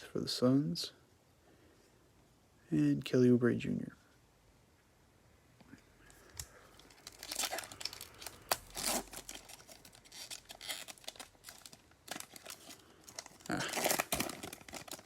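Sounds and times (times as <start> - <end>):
card pack wrapper crinkling: 6.4 - 15.0.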